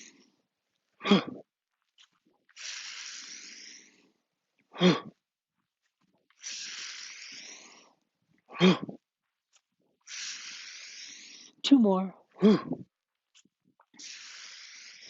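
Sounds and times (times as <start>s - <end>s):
man breathing in with hiss: 0.0s - 0.4s, 2.5s - 4.9s, 6.4s - 8.0s, 10.0s - 11.6s, 14.0s - 15.0s.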